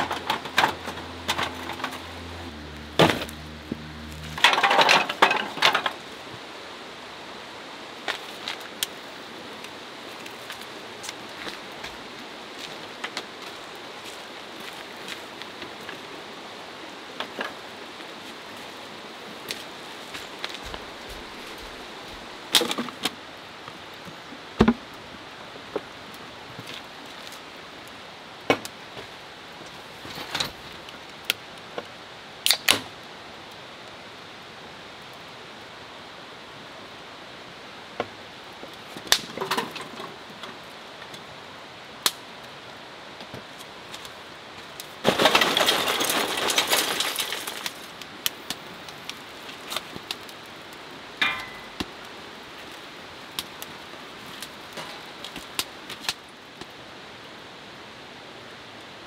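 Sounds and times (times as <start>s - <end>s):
rushing noise: 0.0s - 5.9s
kindling crackling: 0.0s - 6.4s, 8.0s - 16.1s, 38.2s - 41.3s, 42.0s - 57.4s
rain falling: 0.0s - 59.0s.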